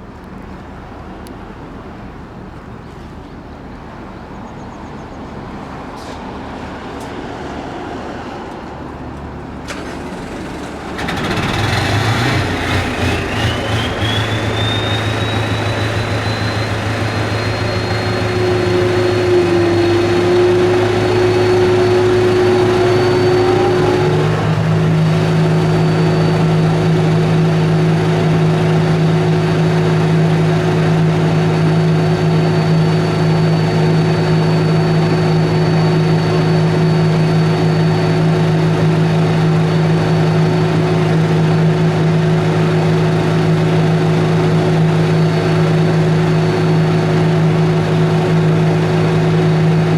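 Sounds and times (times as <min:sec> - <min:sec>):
diesel engine idling: 0:08.8 - 0:49.9
thin high whine: 0:12.5 - 0:40.8
deeper steady tone: 0:13.2 - 0:42.6.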